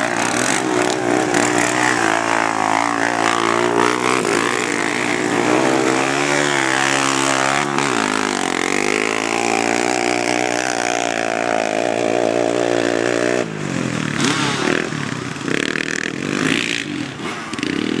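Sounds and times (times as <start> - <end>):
engine running and revving: 0.0 - 18.0
rough uneven engine sound: 0.0 - 18.0.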